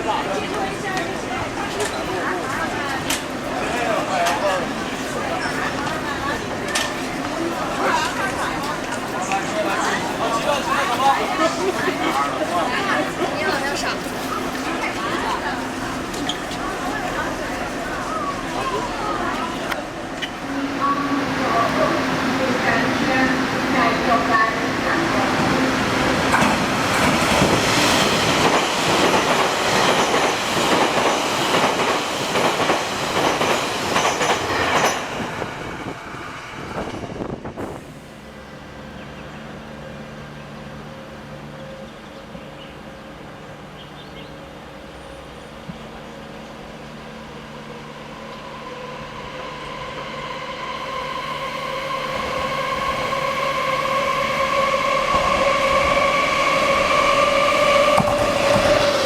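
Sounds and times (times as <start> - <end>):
approaching train whining tone: 44.7 - 59.0.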